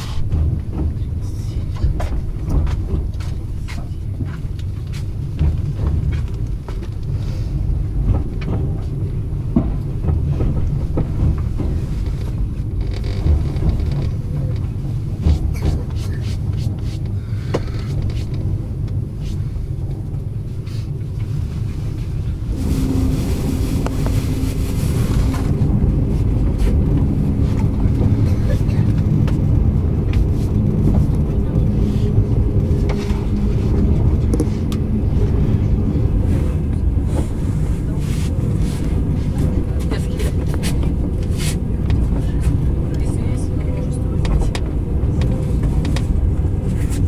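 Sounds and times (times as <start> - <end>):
low rumble of train wheels: 0.0 - 47.0
hiss with low hum: 20.5 - 28.9.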